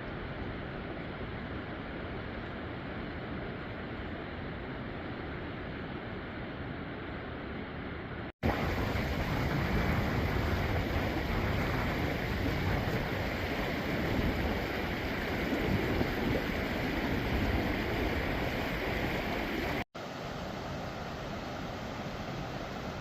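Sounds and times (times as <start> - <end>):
rushing water roar: 0.1 - 23.0.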